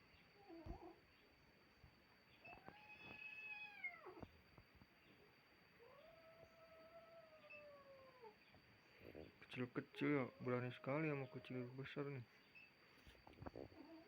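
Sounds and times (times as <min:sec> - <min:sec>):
cats yowling: 0:02.4 - 0:04.3, 0:05.8 - 0:08.4, 0:10.0 - 0:11.8.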